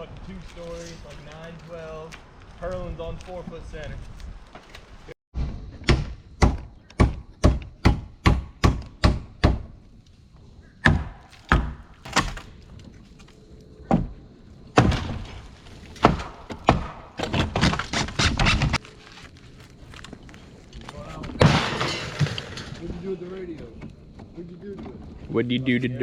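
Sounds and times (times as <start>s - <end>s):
hammer striking wood: 5.8s - 9.8s, 10.8s - 12.5s, 16.0s - 18.7s.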